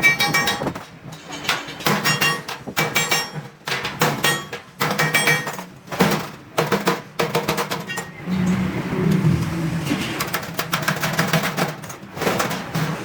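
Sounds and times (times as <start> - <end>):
hammer clanging on steel sheet: 0.0 - 5.6.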